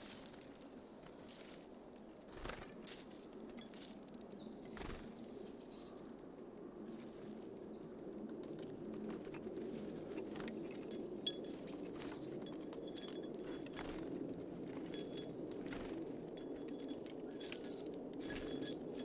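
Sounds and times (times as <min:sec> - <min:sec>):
bird wing flutters: 0:02.2 - 0:03.2, 0:04.7 - 0:05.2.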